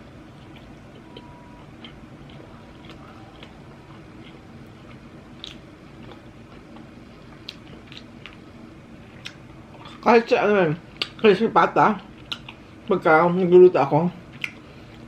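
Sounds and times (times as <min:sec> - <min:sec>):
low steady hum: 0:00.0 - 0:15.0
person chewing crispy food: 0:00.2 - 0:10.1, 0:12.0 - 0:12.9, 0:14.3 - 0:15.0.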